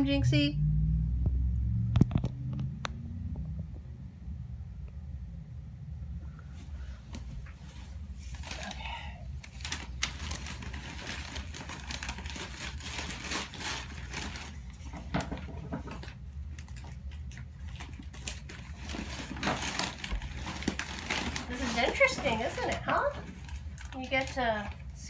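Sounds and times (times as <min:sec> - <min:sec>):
steady low hum: 0:00.0 - 0:25.0
paper wrapping rustling: 0:07.2 - 0:25.0.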